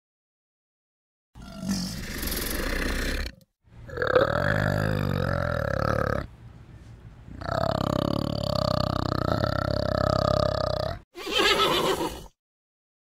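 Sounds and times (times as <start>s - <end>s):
orangutan guttural call: 1.4s - 6.3s, 7.3s - 12.2s
orangutan rasping growl: 1.4s - 6.3s, 7.3s - 11.0s.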